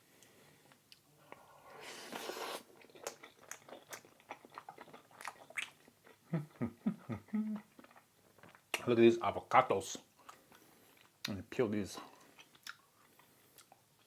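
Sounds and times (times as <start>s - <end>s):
chewing and biting: 2.1s - 6.2s, 7.7s - 8.6s.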